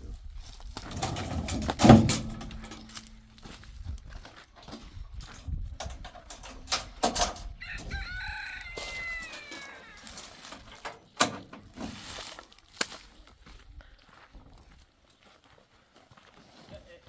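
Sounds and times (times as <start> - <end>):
rooster crowing: 7.4 - 10.5.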